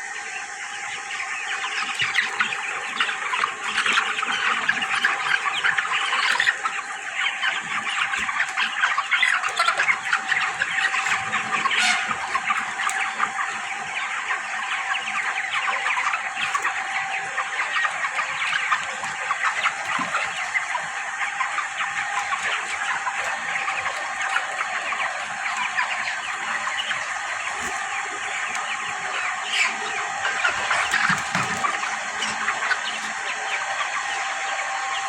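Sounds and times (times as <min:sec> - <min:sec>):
chickens peeping and clucking: 0:00.0 - 0:35.0.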